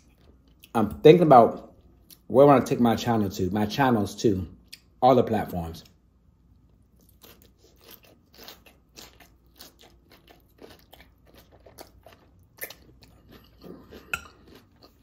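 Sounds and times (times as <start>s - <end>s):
crunchy chewing of raw salad: 6.6s - 15.0s.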